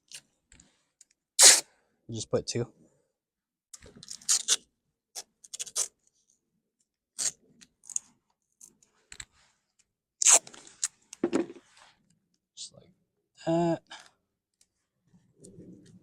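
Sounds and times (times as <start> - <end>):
tape tearing off roll: 1.4 - 1.6, 10.2 - 11.6.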